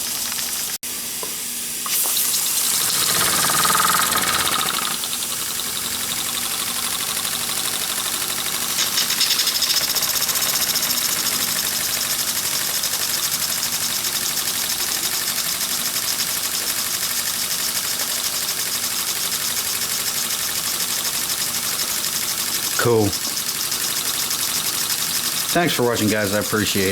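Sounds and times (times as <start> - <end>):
steam hissing: 1.7 - 5.2
steam engine chuffing: 2.5 - 26.9.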